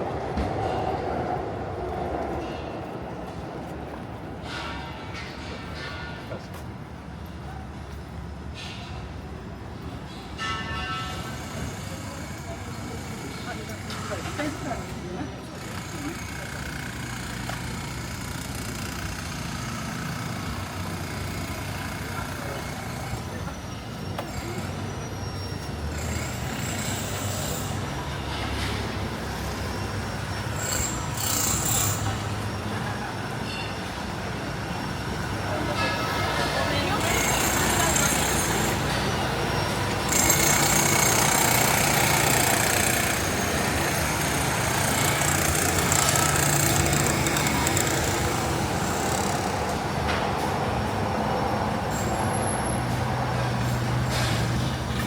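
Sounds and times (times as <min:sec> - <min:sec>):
street noise: 0:00.0 - 0:55.0
vehicle engines humming: 0:12.6 - 0:55.0.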